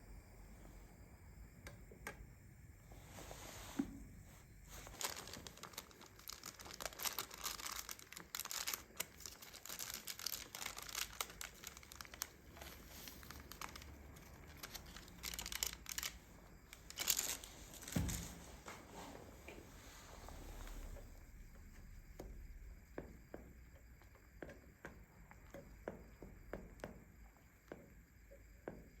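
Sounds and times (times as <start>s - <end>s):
crinkling and rustling: 3.0s - 21.2s.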